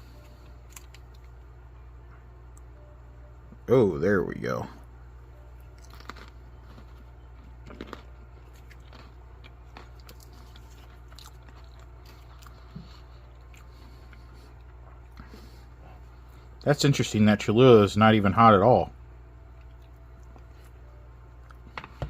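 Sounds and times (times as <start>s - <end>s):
chewing food: 0.0s - 1.5s, 5.5s - 16.6s, 19.5s - 22.0s
low hum: 0.0s - 22.0s.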